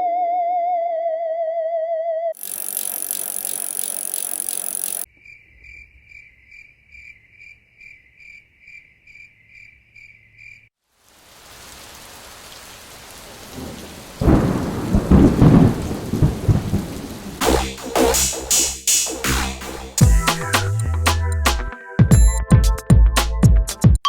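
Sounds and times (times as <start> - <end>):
repeated chirping call: 2.4 - 8.8
rain falling: 10.8 - 18.8
thunder rumbling: 13.2 - 18.2
loud high hiss: 17.4 - 20.7.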